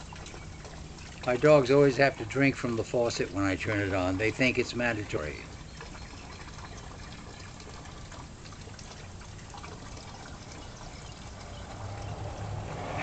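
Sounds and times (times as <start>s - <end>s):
water running from faucet: 0.0s - 12.8s.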